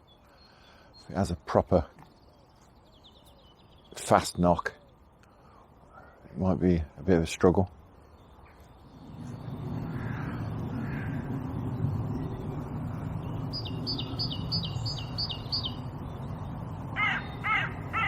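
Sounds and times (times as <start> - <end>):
small bird piping: 0.0 - 5.8, 7.8 - 18.0
low rushing noise: 7.8 - 18.0
crow cawing: 9.8 - 11.4, 17.0 - 18.0.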